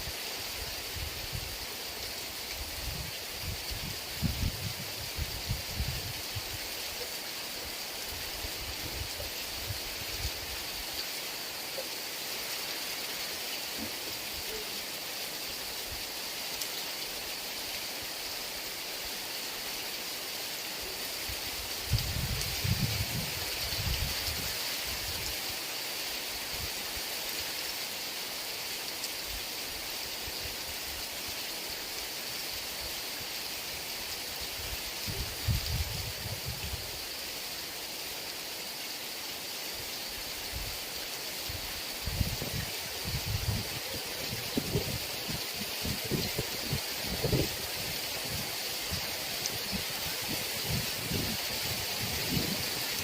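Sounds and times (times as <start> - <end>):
heavy rain falling: 0.0 - 53.0
low rumbling wind gusts: 2.6 - 6.6, 21.8 - 25.3, 35.0 - 37.0, 41.5 - 53.0.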